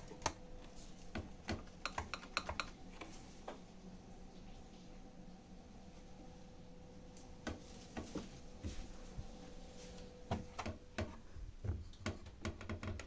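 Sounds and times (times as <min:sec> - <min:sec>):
washing machine hum: 0:00.0 - 0:13.0
washing machine clicks and knocks: 0:01.1 - 0:02.8, 0:10.3 - 0:13.0.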